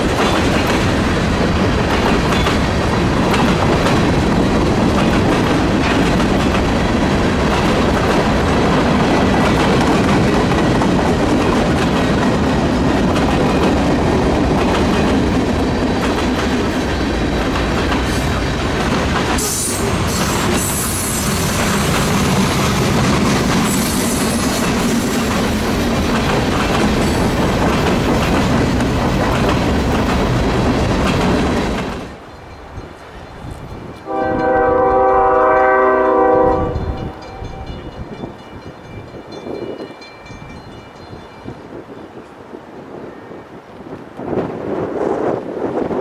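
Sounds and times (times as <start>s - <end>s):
freight train rolling by: 0.0s - 46.0s.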